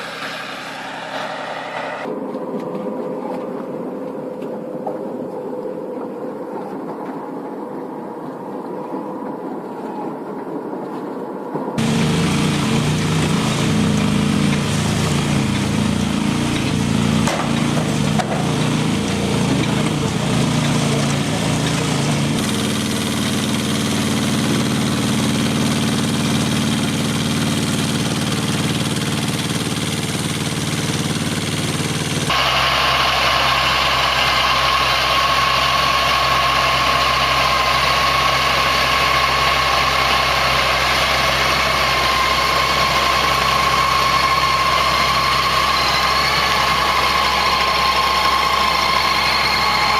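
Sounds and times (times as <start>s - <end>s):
farm machinery engines running: 0.0s - 2.1s, 11.8s - 49.9s
high whine: 0.0s - 9.0s, 11.8s - 49.9s.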